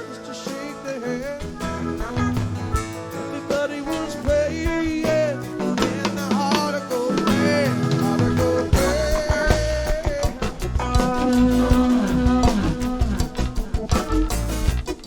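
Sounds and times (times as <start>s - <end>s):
drum kit: 0.0s - 15.0s
guitar: 0.0s - 15.0s
pitch-bending melody line: 0.0s - 15.0s.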